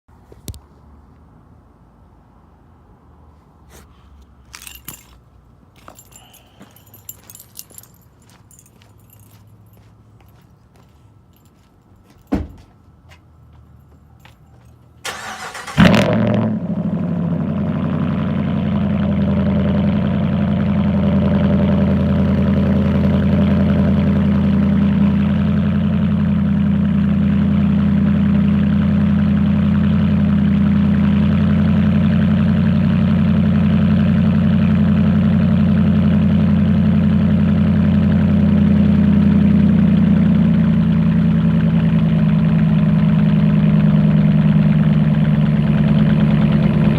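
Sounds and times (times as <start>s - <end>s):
starter cranking engine: 15.1s - 16.0s
engine idling loudly: 16.7s - 46.9s.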